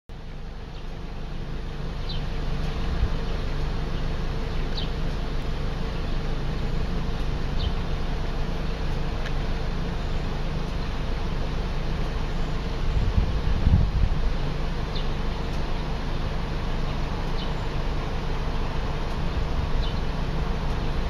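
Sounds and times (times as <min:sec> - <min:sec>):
steady buzzing hum: 0:00.1 - 0:21.0
bird chirping: 0:00.6 - 0:06.4, 0:07.4 - 0:08.8, 0:14.8 - 0:17.8, 0:19.3 - 0:20.2.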